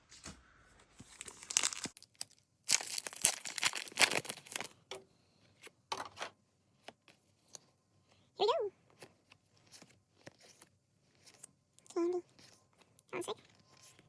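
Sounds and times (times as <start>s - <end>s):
wrapper tearing and crinkling: 1.1s - 4.8s.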